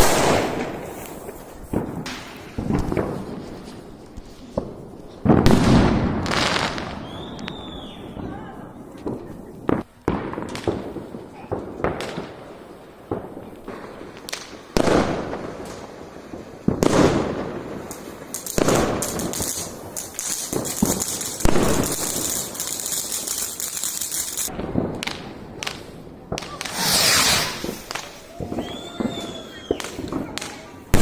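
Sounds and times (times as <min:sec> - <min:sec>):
fireworks crackling: 0:00.0 - 0:31.0
firework shells bursting: 0:17.8 - 0:31.0.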